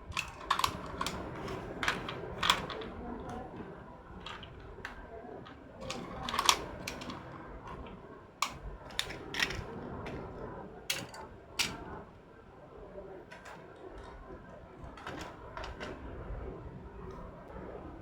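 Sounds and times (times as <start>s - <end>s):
clicks of small hard objects: 0.0s - 3.6s, 4.2s - 10.3s, 10.9s - 11.9s.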